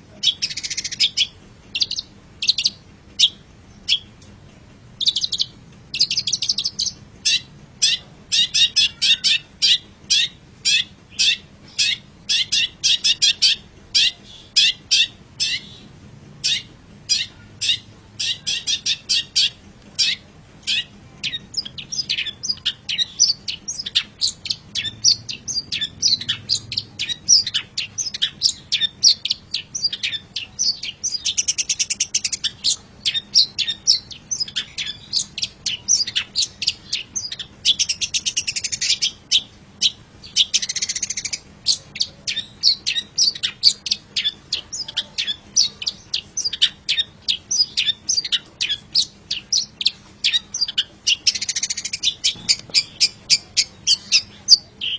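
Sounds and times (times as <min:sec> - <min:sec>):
buzzy rattling bird phrases: 0:00.0 - 0:54.9
bird singing sharp chirps: 0:00.2 - 0:04.1, 0:16.4 - 0:54.9.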